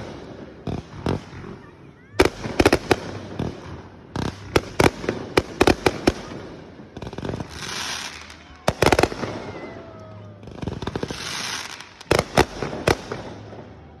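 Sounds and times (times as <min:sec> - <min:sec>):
fireworks bangs: 0:00.0 - 0:14.0
firework hiss: 0:02.2 - 0:09.9, 0:10.5 - 0:13.6.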